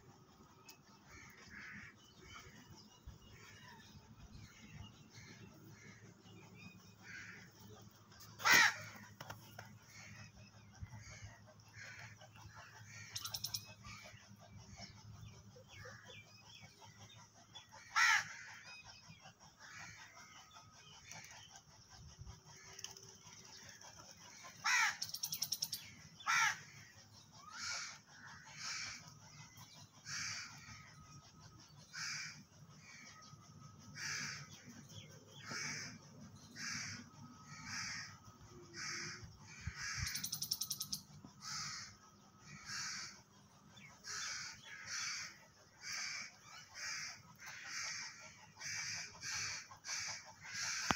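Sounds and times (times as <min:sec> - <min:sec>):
birds calling: 0:00.0 - 0:50.9.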